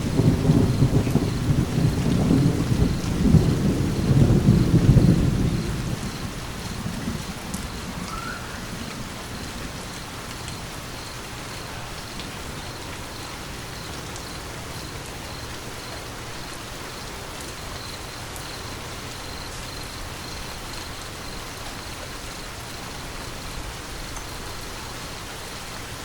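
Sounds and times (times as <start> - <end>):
steady rain falling: 0.0 - 26.0
faint high insect chirp: 0.1 - 26.0.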